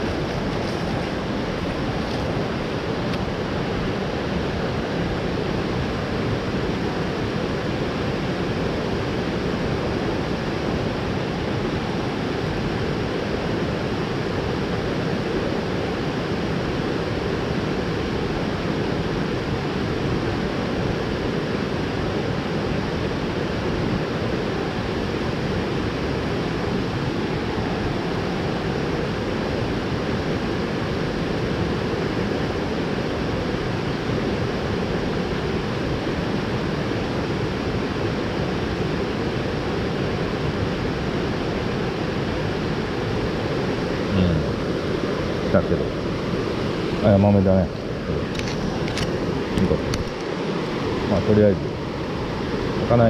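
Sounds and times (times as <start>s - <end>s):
stream water rushing over rocks: 0.0s - 53.0s.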